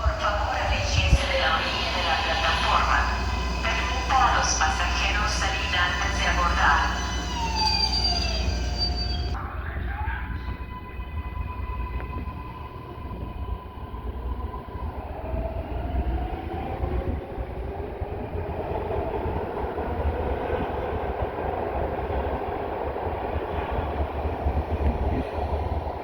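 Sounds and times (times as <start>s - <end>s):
train rumbling on rails: 0.0s - 26.0s.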